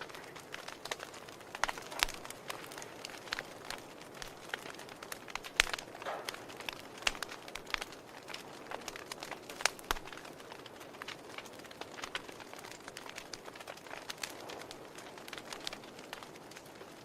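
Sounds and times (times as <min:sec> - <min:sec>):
logs crackling in a fireplace: 0:00.0 - 0:17.0.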